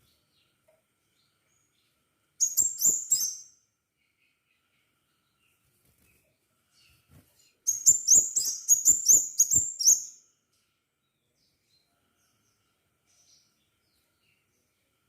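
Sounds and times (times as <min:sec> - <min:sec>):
bird singing sharp high chips: 0:02.4 - 0:03.6, 0:07.7 - 0:10.2.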